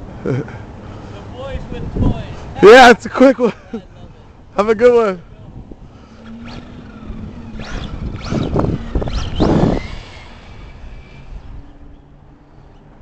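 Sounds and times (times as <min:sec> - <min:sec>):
wind rumbling on microphone: 0:01.4 - 0:02.6, 0:05.2 - 0:13.0
electric motor whining: 0:05.8 - 0:12.8.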